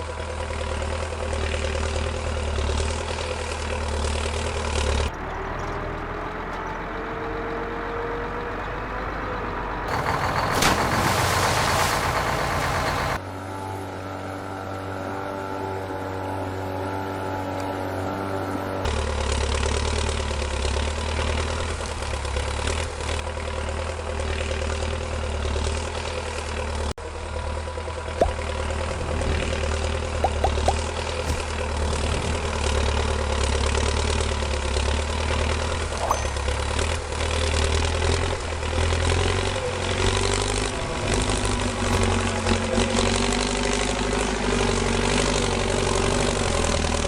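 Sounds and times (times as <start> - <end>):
model tractor engine running: 8.2 - 13.2.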